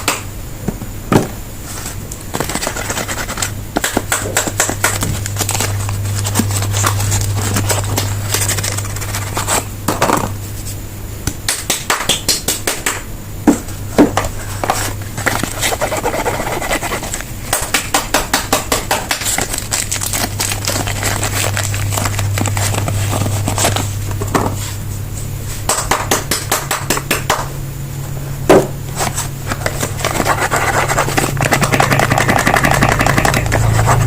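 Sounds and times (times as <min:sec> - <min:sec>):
steady low hum: 0:00.0 - 0:34.0
wrappers crinkling: 0:19.2 - 0:24.0.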